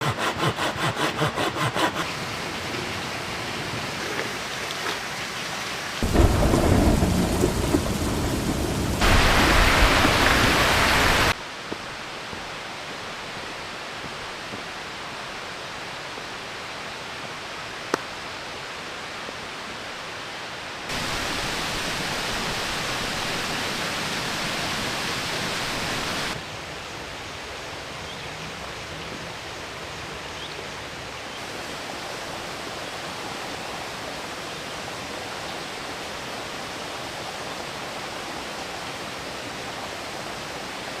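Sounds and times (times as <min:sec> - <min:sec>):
heavy rain falling: 0:02.1 - 0:16.1, 0:20.8 - 0:26.4
low thunder rumble: 0:06.0 - 0:11.3.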